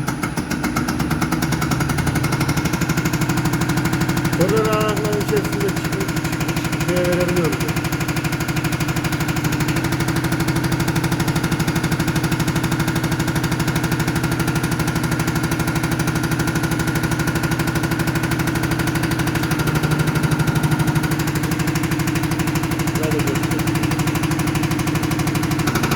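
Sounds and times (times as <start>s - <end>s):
pump test bench pulsing: 0.8s - 12.6s, 17.7s - 25.9s.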